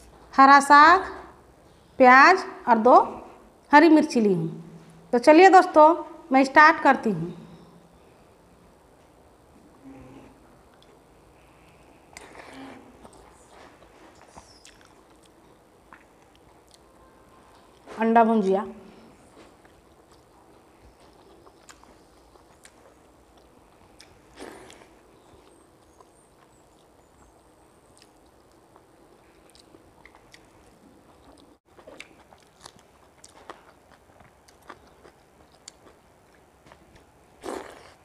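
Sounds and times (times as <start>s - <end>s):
person chewing: 11.6s - 17.9s, 19.2s - 38.0s
loud mouth noises: 12.1s - 13.4s, 37.4s - 38.0s.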